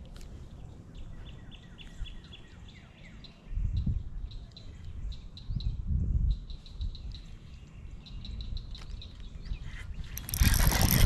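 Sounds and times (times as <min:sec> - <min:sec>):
small birds chirping: 0:00.0 - 0:11.0
loud rustling: 0:10.2 - 0:11.0.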